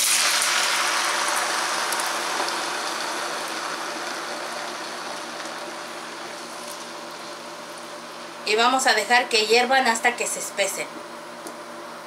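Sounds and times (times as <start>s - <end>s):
beans sizzling in a frying pan: 0.0s - 8.4s.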